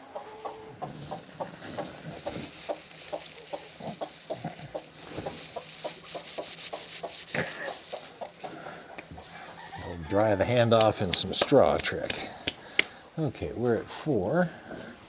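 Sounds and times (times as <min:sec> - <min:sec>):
hens clucking: 0:00.8 - 0:12.9
straw rustling by hand: 0:00.8 - 0:12.9.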